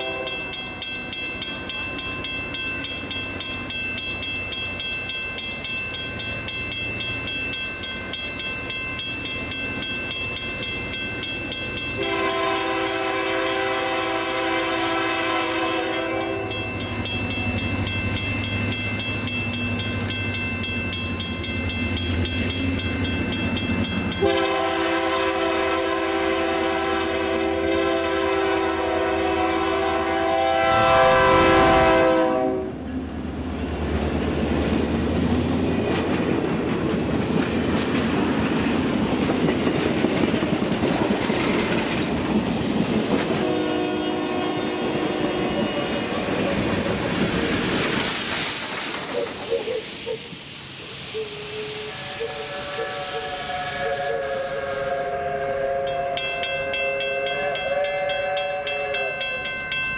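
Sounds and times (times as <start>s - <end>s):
locomotive horn blast: 0.0s - 0.6s, 12.0s - 16.6s, 24.2s - 32.9s, 43.3s - 46.3s, 51.4s - 59.1s
coach wheels clattering: 33.4s - 43.4s
steam hissing: 45.3s - 56.1s.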